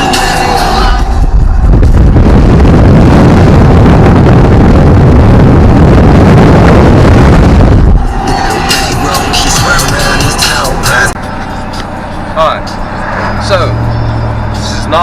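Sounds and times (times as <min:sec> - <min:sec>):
low rumble: 0:00.0 - 0:15.0
wind buffeting microphone: 0:01.0 - 0:11.1.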